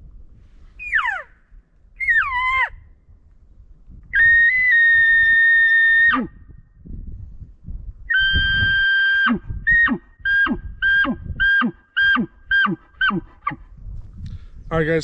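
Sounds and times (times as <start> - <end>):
elk call whistled notes: 0.8 - 1.4, 2.0 - 2.8, 8.1 - 13.6.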